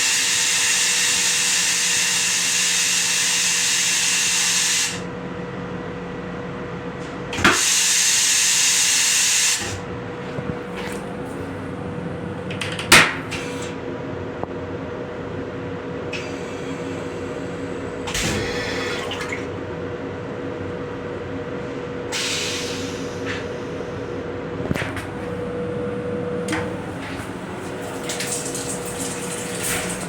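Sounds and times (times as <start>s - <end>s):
steady hum with tones: 9.8s - 30.0s
rushing hissing water: 27.6s - 30.0s.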